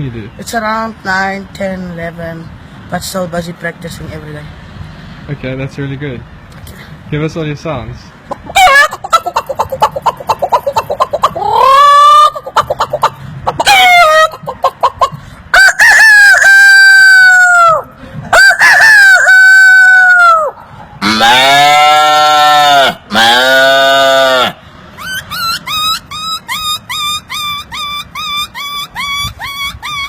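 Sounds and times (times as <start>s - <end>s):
man imitating chickens: 8.3s - 30.0s
lower animal call: 20.0s - 30.0s.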